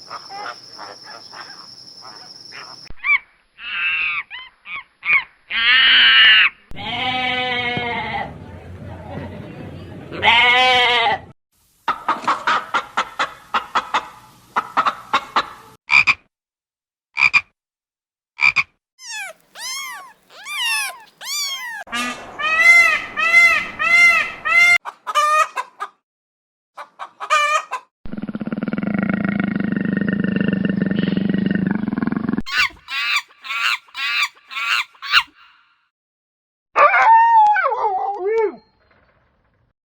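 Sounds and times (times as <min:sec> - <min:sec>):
steady buzzing call: 0:19.0 - 0:21.8
chicken-like calls: 0:19.0 - 0:25.9, 0:32.5 - 0:35.7.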